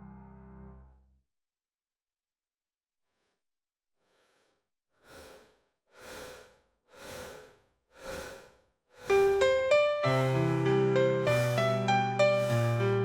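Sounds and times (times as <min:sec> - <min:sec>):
breathy whooshing swells: 0:05.1 - 0:09.6, 0:11.3 - 0:13.0
electric piano chords: 0:09.4 - 0:13.0.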